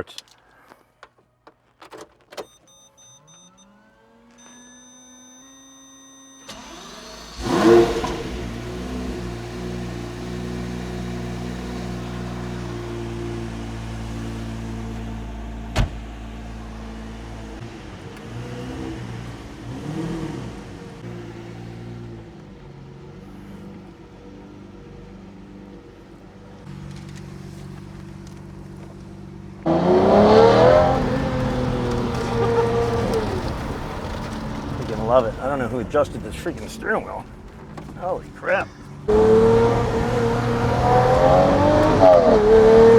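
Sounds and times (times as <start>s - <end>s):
car engine starting and idling: 0.0s - 42.9s
electronic beeps: 2.4s - 6.6s
rising whirs: 2.7s - 16.0s, 29.6s - 42.9s.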